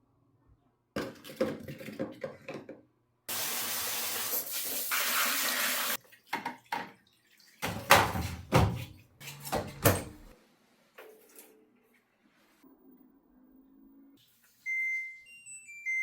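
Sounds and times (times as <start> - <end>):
water running from a tap: 3.3 - 8.8.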